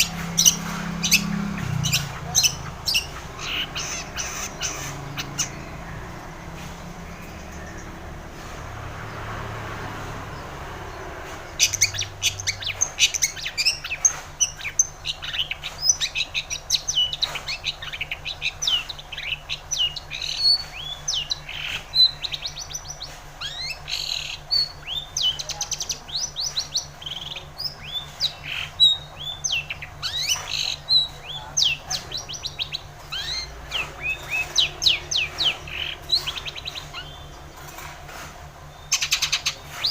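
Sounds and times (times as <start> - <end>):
bird singing sharp chirps: 0.0 - 8.4, 10.4 - 37.7, 38.6 - 39.9.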